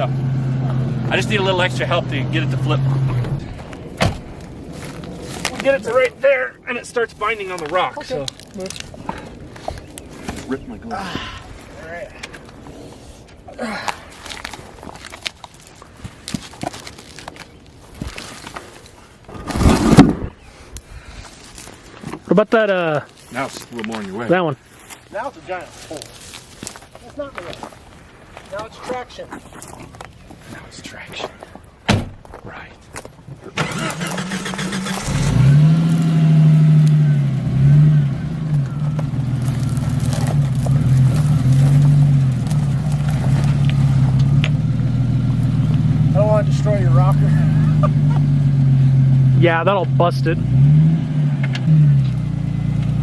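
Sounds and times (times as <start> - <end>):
car engine revving under load: 0.0 - 3.6, 33.6 - 53.0
rock scraping over gravel: 3.6 - 6.3, 14.1 - 20.4, 38.6 - 44.5.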